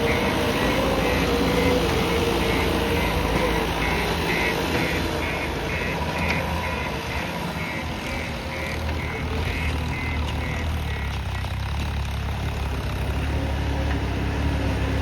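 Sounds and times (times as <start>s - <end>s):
reversing alarm beeping: 0.0s - 11.6s
diesel engine running: 0.0s - 15.0s.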